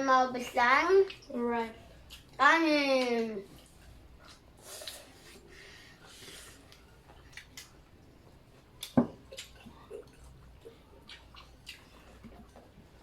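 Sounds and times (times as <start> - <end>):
eating clicks and smacks: 6.7 - 7.8, 8.8 - 12.7.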